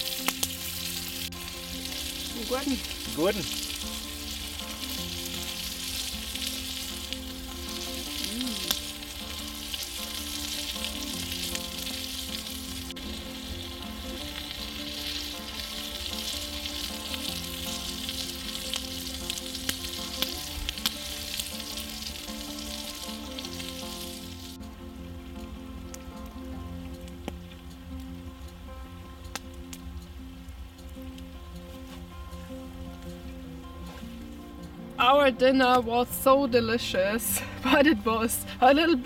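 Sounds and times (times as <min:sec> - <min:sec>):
fire crackles and pops: 0:00.0 - 0:39.0
meat sizzling on hot stone: 0:00.0 - 0:39.0.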